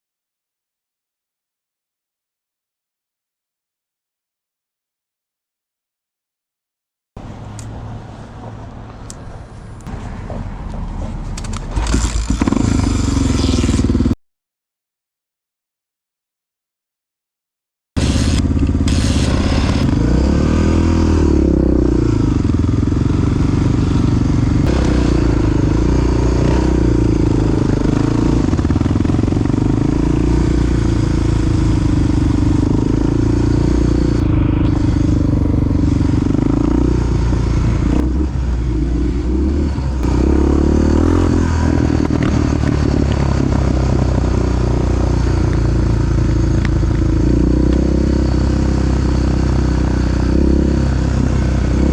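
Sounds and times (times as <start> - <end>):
motorcycle engine riding: 9.5 - 14.2, 18.0 - 51.9.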